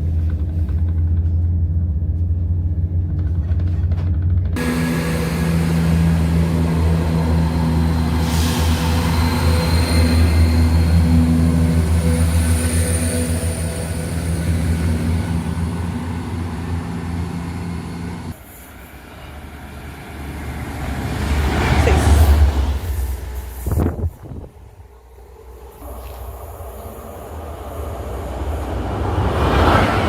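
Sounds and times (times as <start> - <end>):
vehicle engine humming: 0.0 - 18.4.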